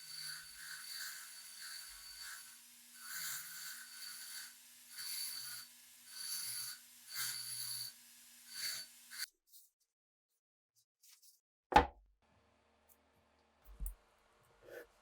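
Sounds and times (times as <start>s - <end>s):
rubbing strokes on a workpiece: 0.0s - 9.3s.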